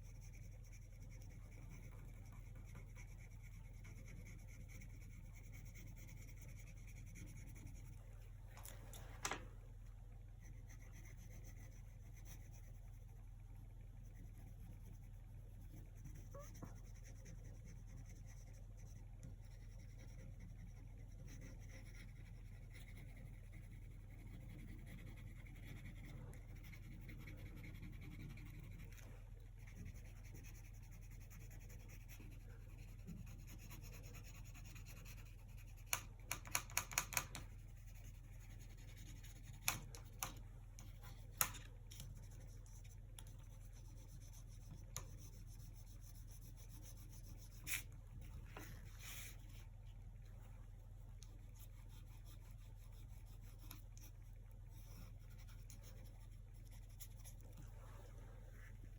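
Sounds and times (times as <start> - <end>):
paintbrush strokes: 37.4 - 58.9.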